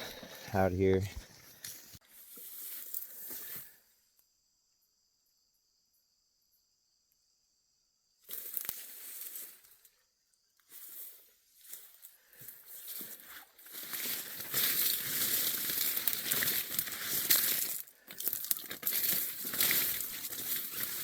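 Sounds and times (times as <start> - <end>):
rustling and crinkling on microphone: 12.7 - 21.0.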